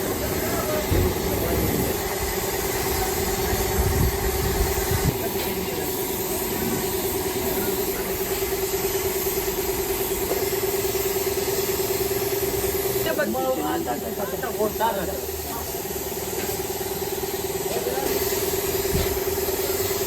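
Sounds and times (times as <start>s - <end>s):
motor humming: 0.0s - 5.2s.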